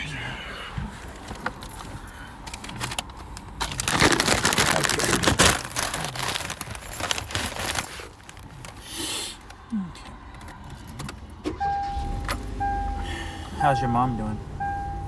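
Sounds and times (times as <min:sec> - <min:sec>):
food wrapper crinkling: 0:02.5 - 0:09.6.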